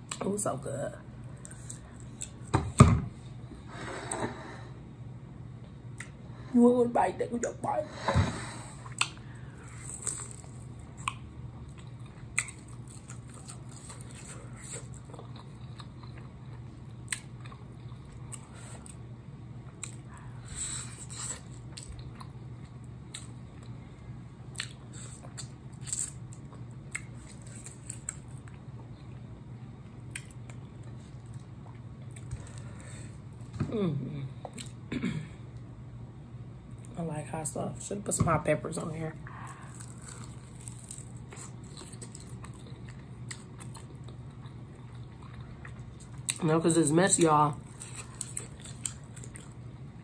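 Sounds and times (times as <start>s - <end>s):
steady low hum: 0.0s - 50.0s
wet chewing and smacking: 8.8s - 19.0s, 24.5s - 29.2s, 30.1s - 32.6s, 39.4s - 46.4s, 47.6s - 50.0s.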